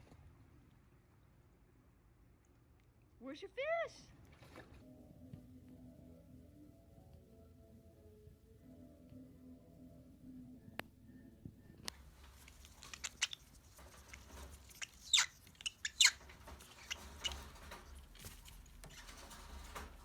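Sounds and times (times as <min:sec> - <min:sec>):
pet gnawing wood: 0:11.9 - 0:19.0.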